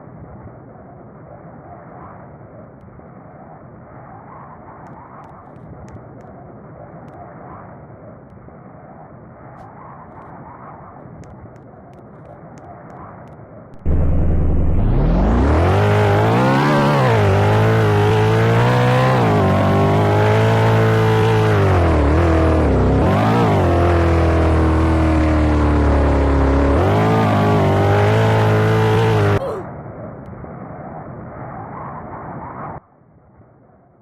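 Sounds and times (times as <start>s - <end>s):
car engine revving: 13.8s - 29.4s.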